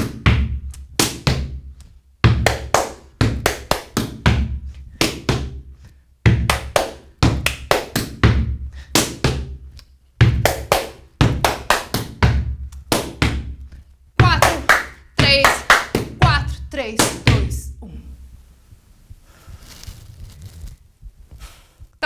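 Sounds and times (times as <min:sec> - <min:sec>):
hands clapping: 0:00.0 - 0:01.5, 0:02.3 - 0:04.4, 0:05.0 - 0:05.5, 0:06.3 - 0:08.2, 0:08.8 - 0:17.6
hands slapping rubber boots: 0:00.0 - 0:17.7.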